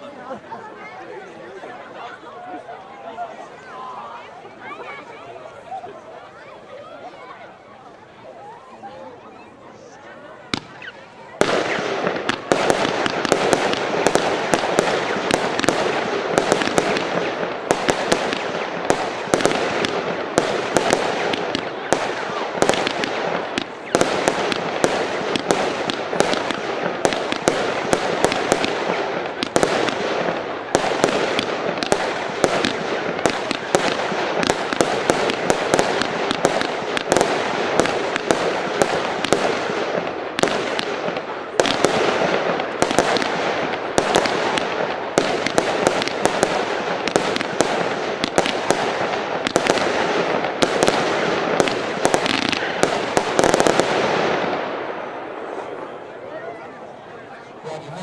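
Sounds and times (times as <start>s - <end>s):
firework battery firing: 10.5s - 54.7s.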